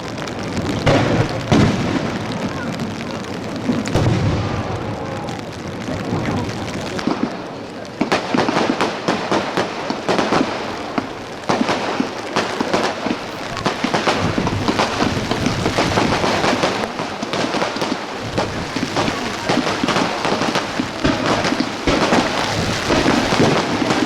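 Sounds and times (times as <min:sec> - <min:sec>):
fireworks bangs and crackles: 0:00.0 - 0:24.0
heavy rain hiss: 0:00.0 - 0:24.0.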